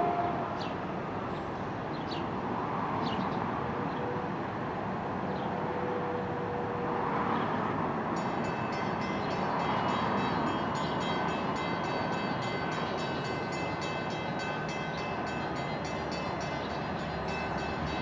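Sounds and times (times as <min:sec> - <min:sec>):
distant train rumbling: 0:08.0 - 0:18.0.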